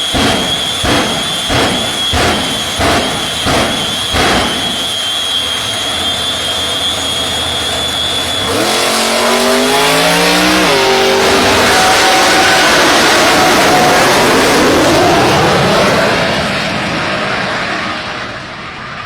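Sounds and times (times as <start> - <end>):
jet engines whining and roaring: 0.0 - 19.0
race car accelerating: 7.3 - 18.5.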